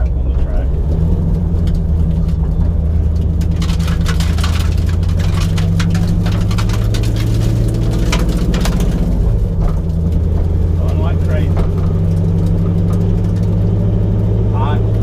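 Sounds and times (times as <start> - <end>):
car engine idling: 0.0 - 15.0
clicking and rattling: 1.2 - 13.6.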